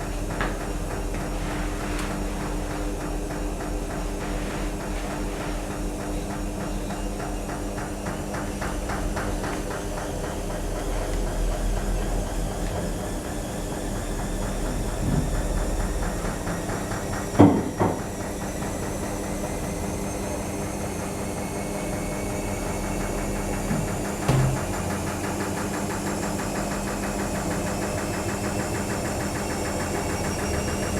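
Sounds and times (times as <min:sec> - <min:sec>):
washing machine motor humming: 0:00.0 - 0:30.9
sharp knocks: 0:24.2 - 0:25.1.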